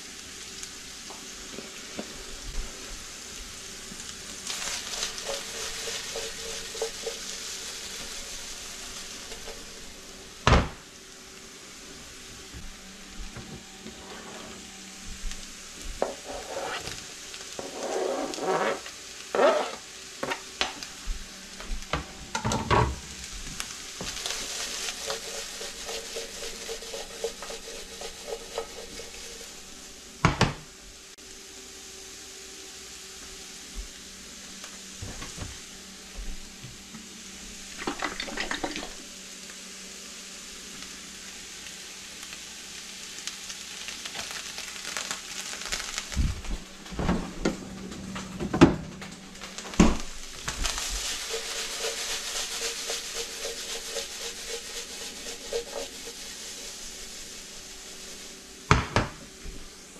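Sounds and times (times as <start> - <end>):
vegetables and sausage sizzling: 0.0 - 59.9
utensils clattering against pan: 51.0 - 56.4.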